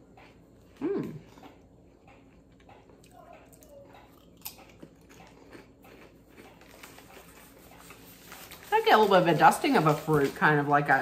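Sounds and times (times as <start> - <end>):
potato crisps crunching: 4.0 - 7.5.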